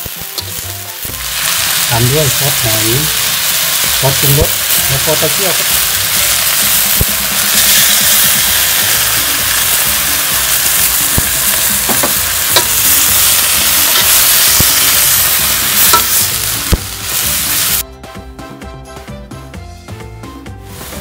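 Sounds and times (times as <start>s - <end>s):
vegetables sizzling in a wok: 0.0s - 17.8s, 20.6s - 21.0s
background music: 0.0s - 21.0s.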